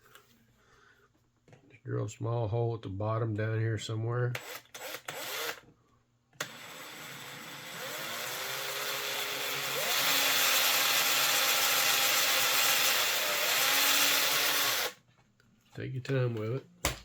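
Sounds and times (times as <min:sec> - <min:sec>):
small electric drill drilling plastic: 0:04.4 - 0:05.6, 0:06.4 - 0:15.0.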